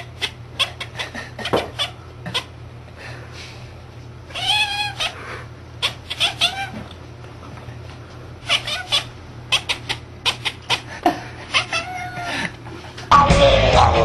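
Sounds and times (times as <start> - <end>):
cat chirping meows: 4.3 - 5.2, 5.8 - 6.8, 8.4 - 10.8, 11.5 - 12.2
cat meowing: 4.3 - 5.2, 5.8 - 6.8, 8.4 - 10.7, 11.5 - 12.3.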